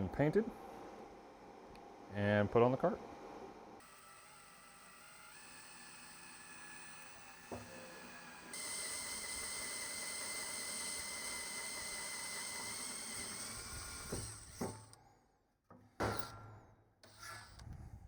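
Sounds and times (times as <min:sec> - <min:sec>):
power tool whining: 0:03.8 - 0:15.0, 0:17.0 - 0:17.7.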